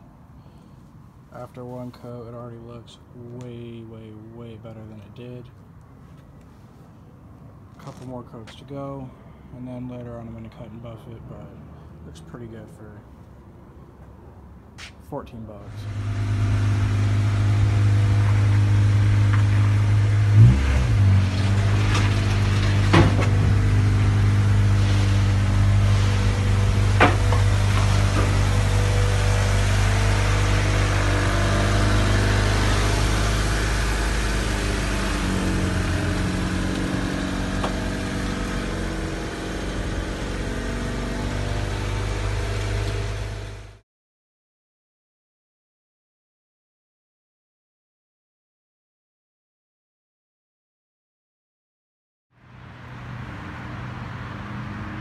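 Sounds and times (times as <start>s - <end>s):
car engine running: 15.7s - 43.8s.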